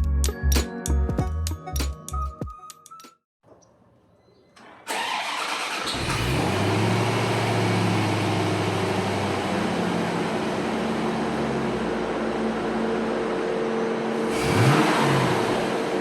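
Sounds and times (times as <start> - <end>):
starter motor cranking: 4.9 - 6.6
car engine idling: 4.9 - 16.0.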